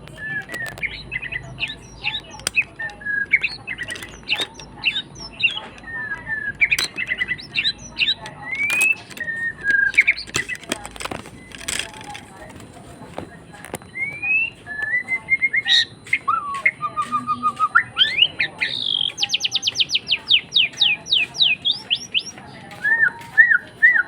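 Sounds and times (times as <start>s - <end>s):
sharp clicks: 0.0s - 23.2s
pet bird singing: 0.0s - 24.0s.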